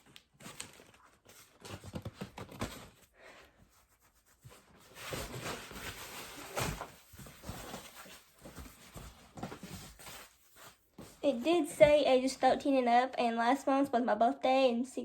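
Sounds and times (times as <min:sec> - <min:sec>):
packaging rustling and scraping: 0:00.0 - 0:03.1, 0:04.0 - 0:11.5.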